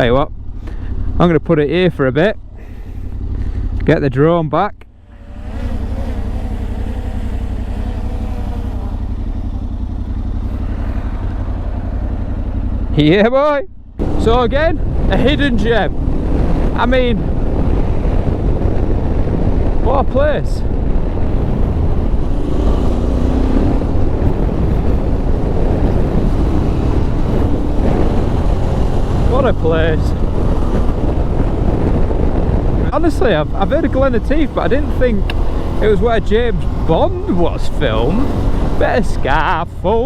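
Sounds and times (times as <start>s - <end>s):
motorcycle engine idling: 0.0s - 4.1s, 4.7s - 19.9s
motorcycle engine cruising: 0.0s - 40.0s
wind on microphone: 14.0s - 40.0s.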